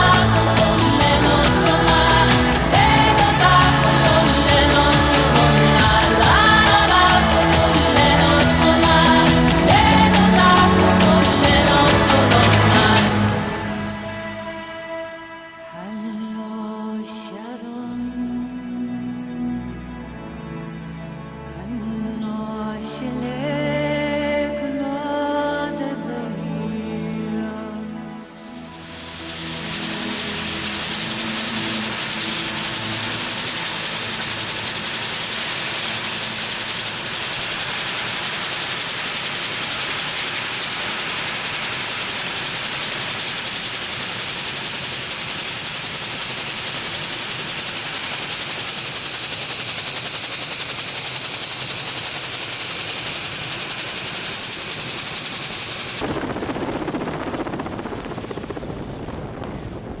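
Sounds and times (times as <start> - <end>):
background music: 0.0 - 37.7
aircraft cabin engine rush: 28.3 - 60.0.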